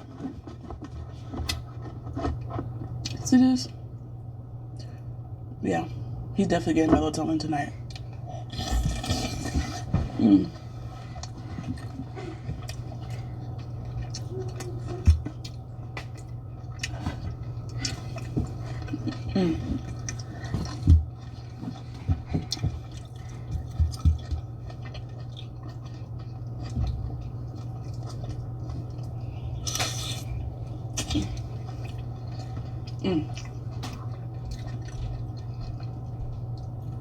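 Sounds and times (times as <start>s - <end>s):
steady low hum: 0.0s - 37.0s
chewing: 7.9s - 37.0s.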